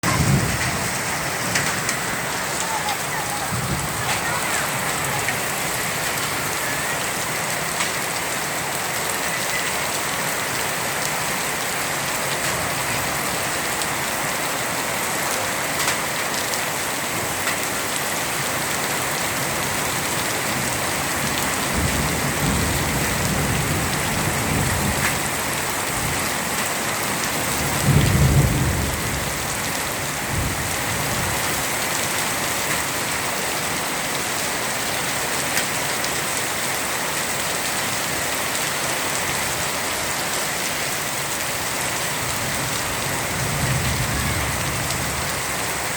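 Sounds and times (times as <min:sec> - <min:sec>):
thunder rumbling: 0:00.0 - 0:07.6, 0:20.5 - 0:26.4, 0:27.2 - 0:31.4, 0:42.2 - 0:45.9
heavy rain pouring: 0:00.0 - 0:45.9.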